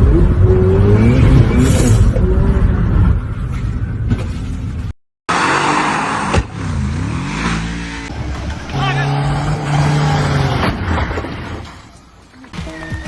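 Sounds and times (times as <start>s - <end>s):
car engine revving: 5.3s - 11.0s.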